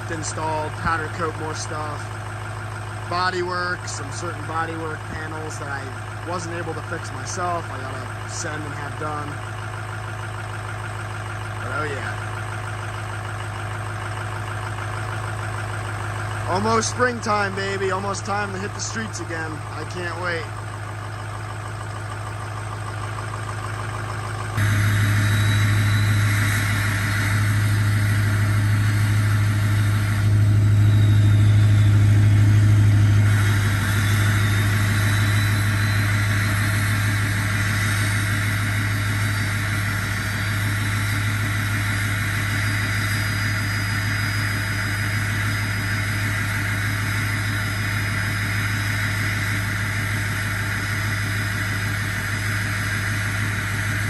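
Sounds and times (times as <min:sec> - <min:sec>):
diesel pickup engine idling: 0:00.0 - 0:54.0.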